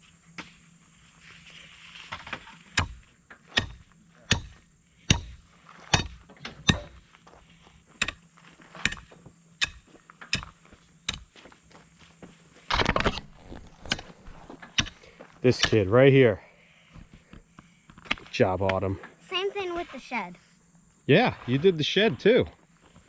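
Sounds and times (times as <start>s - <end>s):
gravel crunching: 5.4s - 16.4s.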